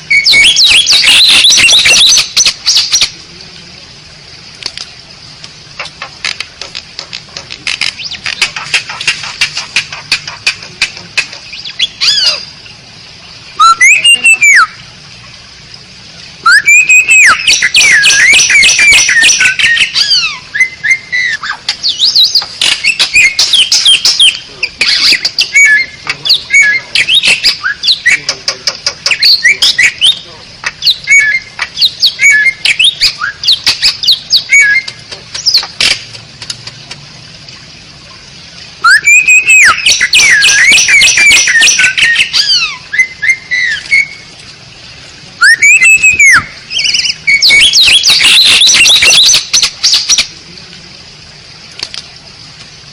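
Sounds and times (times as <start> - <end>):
bird squawks: 0.0 - 3.1, 7.8 - 12.5, 13.6 - 14.8, 16.4 - 36.0, 38.8 - 44.2, 45.4 - 50.3
bird whistled phrases: 0.0 - 3.1, 11.5 - 12.5, 13.6 - 14.8, 16.4 - 28.4, 29.0 - 35.7, 38.8 - 44.2, 45.4 - 50.3
starling clicking chatter: 0.4 - 3.2, 4.6 - 12.2, 16.7 - 20.2, 21.6 - 37.1, 38.9 - 42.6, 47.4 - 50.4.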